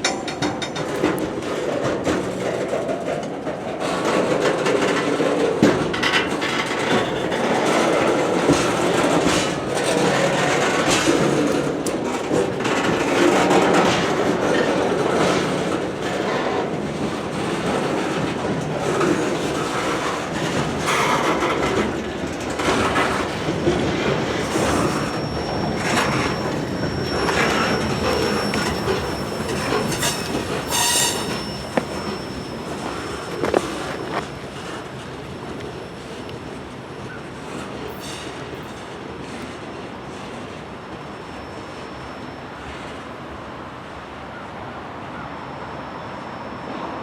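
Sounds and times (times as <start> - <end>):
train wheels clacking on rail joints: 0.0 - 36.8
high wheel squeal: 22.6 - 38.9.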